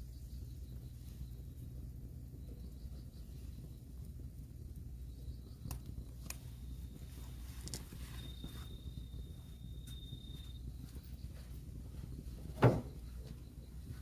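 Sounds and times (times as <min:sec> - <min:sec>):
fire burning with low rumble: 0:00.0 - 0:14.0
fire crackling pops: 0:00.0 - 0:14.0.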